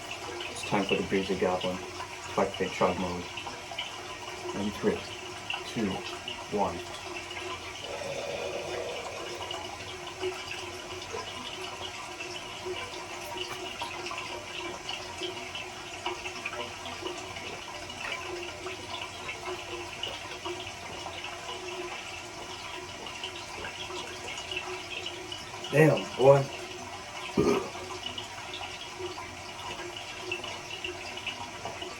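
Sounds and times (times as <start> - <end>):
running tap water: 0.0 - 31.9
faint swallowing: 7.8 - 9.7, 27.4 - 27.8.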